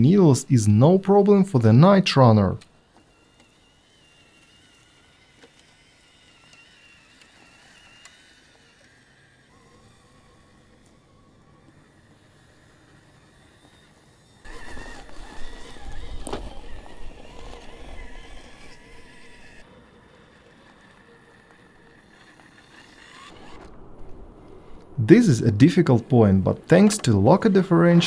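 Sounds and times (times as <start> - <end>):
electric motor whining: 2.4 - 24.0.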